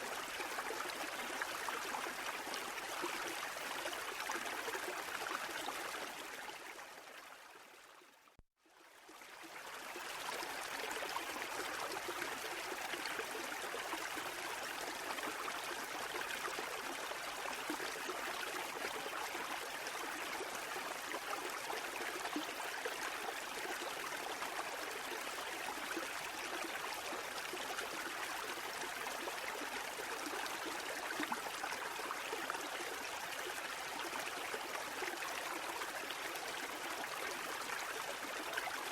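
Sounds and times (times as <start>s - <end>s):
rushing water: 9.6s - 38.9s.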